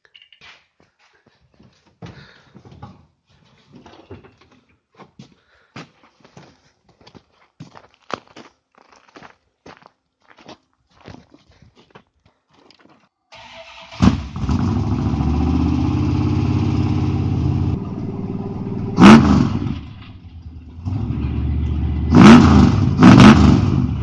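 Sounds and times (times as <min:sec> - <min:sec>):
truck engine starting and running: 0:13.3 - 0:24.0
engine revving sharply: 0:13.4 - 0:24.0.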